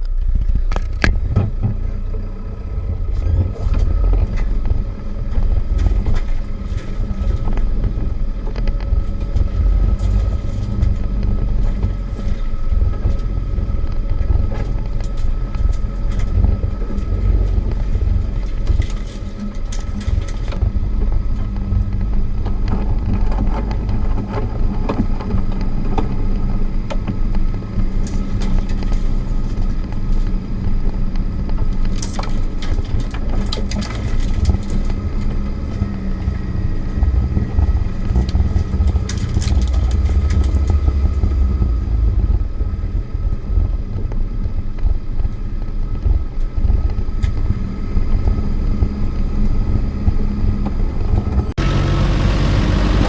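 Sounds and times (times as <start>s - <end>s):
vehicle knocks and clicks: 0.0s - 2.3s, 3.1s - 51.7s
car engine droning: 0.0s - 53.0s.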